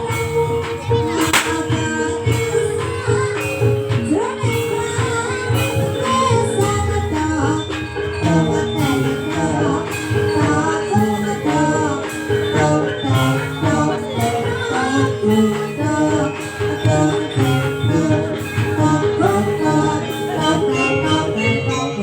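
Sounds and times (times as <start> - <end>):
steady drumming: 0.0 - 20.6
jingling percussion: 0.0 - 22.0
wavering gamelan melody: 0.0 - 22.0.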